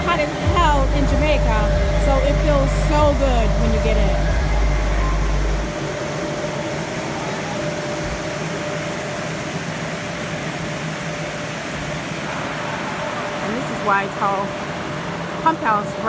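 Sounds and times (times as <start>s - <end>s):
low rumble: 0.0s - 5.8s
water pump humming: 0.0s - 16.0s.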